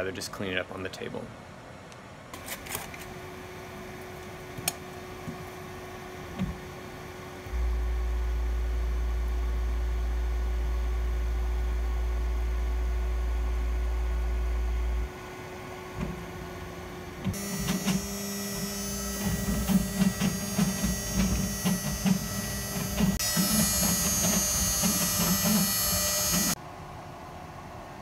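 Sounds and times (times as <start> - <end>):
steady low hum: 3.2 - 28.0
router spindle whining: 17.2 - 26.6.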